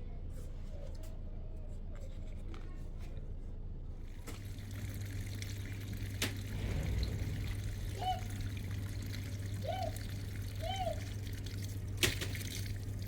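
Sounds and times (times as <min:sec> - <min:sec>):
water trickling and pouring: 0:04.3 - 0:13.0
steady low hum: 0:06.3 - 0:12.0.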